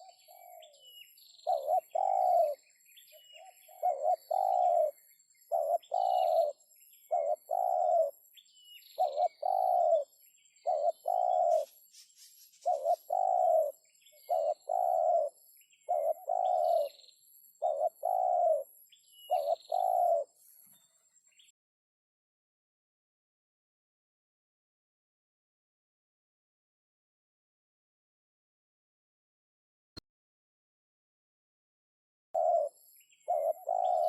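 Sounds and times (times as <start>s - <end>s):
dove cooing: 0.0s - 8.3s, 9.0s - 11.8s, 12.6s - 20.4s, 32.4s - 34.0s
small birds chirping: 0.0s - 21.6s, 32.4s - 34.0s.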